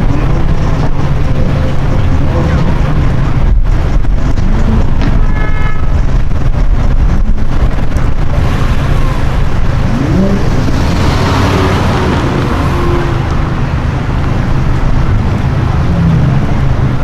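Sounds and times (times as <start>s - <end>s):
car engine accelerating: 0.0s - 5.2s, 5.9s - 17.0s
car horn toot: 8.4s - 15.7s.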